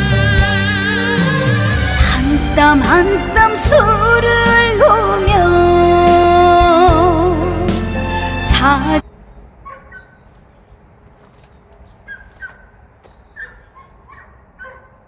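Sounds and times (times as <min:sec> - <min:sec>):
song with singing voice: 0:00.0 - 0:09.0.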